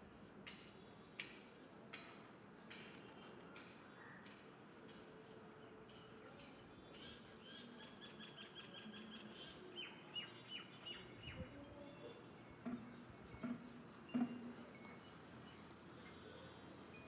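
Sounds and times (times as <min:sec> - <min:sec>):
soft knocks: 0:12.6 - 0:15.0.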